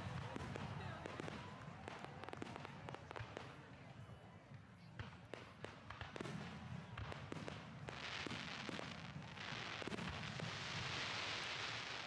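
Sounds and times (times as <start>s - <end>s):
fireworks bangs and pops: 0.0s - 12.0s
fireworks crackling hiss: 7.1s - 12.0s.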